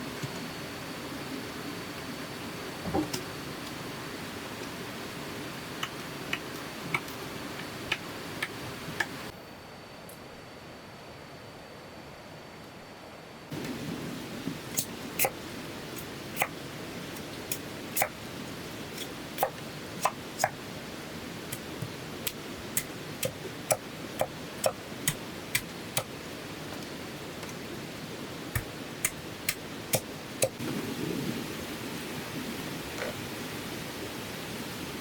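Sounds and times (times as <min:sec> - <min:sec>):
steady hiss: 0:13.5 - 0:35.0.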